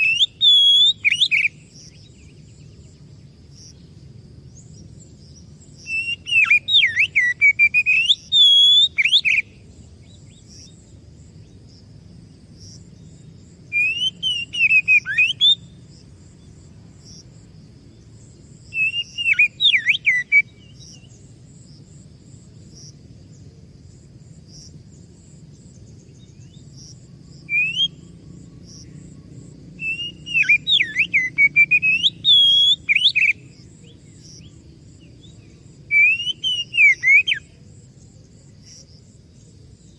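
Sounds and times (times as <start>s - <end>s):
bird singing whistled phrases: 0.0s - 1.6s, 5.8s - 9.6s, 13.7s - 15.8s, 18.7s - 21.1s, 27.5s - 28.1s, 29.8s - 33.5s, 35.9s - 37.5s
faint high chirping: 0.0s - 11.8s, 12.5s - 21.4s, 24.5s - 39.9s.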